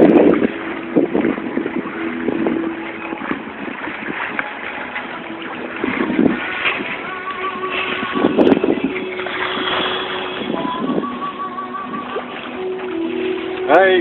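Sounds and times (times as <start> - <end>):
water rushing past a hull: 0.0 - 14.0
wind rushing: 5.8 - 11.2.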